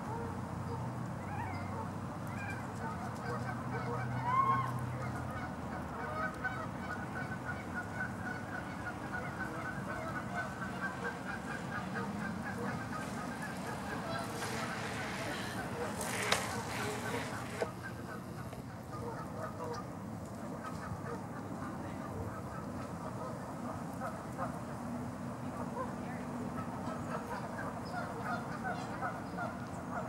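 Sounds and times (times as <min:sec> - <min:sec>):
geese honking: 0:02.8 - 0:19.9, 0:26.5 - 0:30.0.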